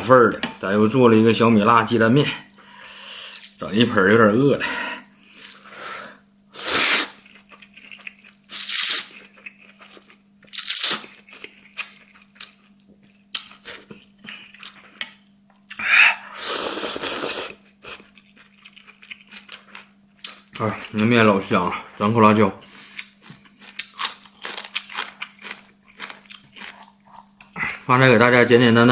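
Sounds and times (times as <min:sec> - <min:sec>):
faint steady hum: 0:00.0 - 0:28.9
hissy slurps of noodles: 0:06.6 - 0:07.2, 0:16.4 - 0:17.6.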